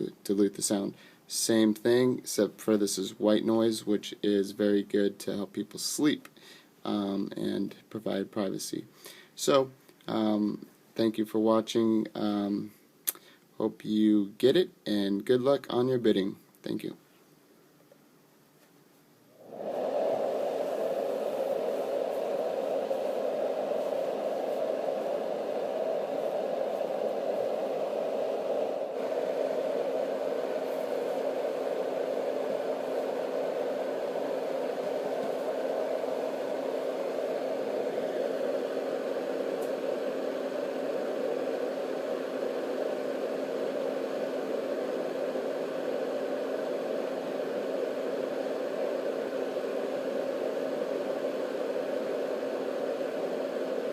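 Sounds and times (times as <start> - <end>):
faint steady hum: 0.0 - 53.9
white noise fan rushing: 19.2 - 53.9.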